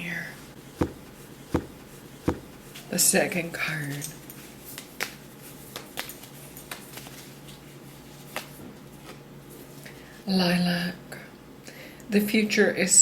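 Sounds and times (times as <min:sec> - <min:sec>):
faint steady hum: 0:00.0 - 0:13.0
cards clicking and tapping: 0:00.8 - 0:02.7.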